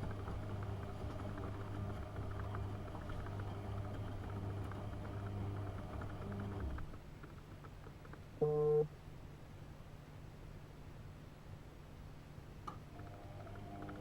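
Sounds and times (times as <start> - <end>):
washing machine drum motor humming: 0.0 - 7.0
short loud tone: 8.4 - 8.9.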